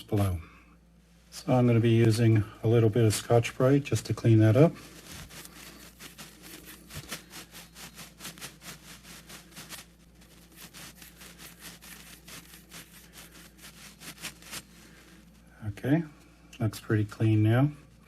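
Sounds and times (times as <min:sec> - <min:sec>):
scouring pad scrubbing metal rod: 0:04.6 - 0:14.7.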